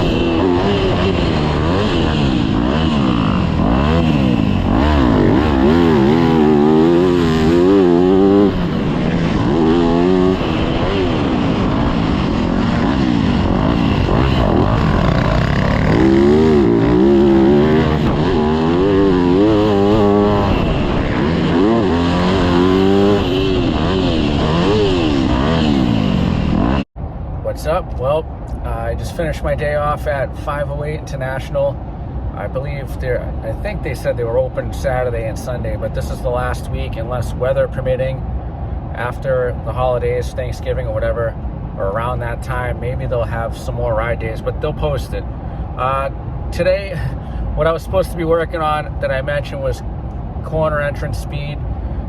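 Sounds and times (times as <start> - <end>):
dirt bike engine revving: 0.0 - 26.9.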